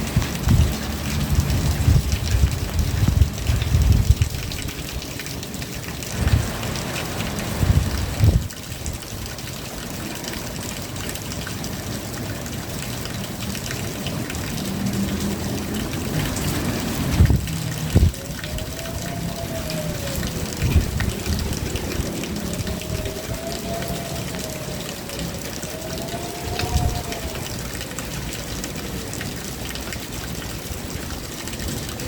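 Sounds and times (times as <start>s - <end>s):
low rumbles: 0.0s - 5.0s, 14.3s - 31.9s
rain falling: 0.0s - 32.0s
water running and trickling: 0.0s - 32.0s.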